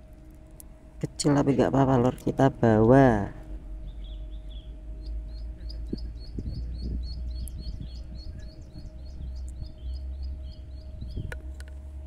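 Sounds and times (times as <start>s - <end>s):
wind rumble on microphone: 2.2s - 12.0s
bird chirping rapidly: 3.8s - 11.3s.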